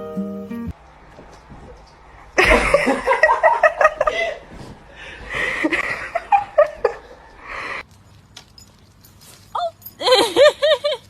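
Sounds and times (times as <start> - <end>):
breathy noise: 4.0 - 7.9.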